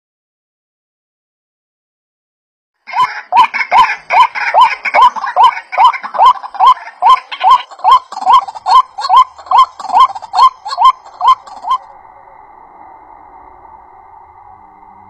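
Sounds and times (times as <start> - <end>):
bird clucking calls: 2.9 - 11.9.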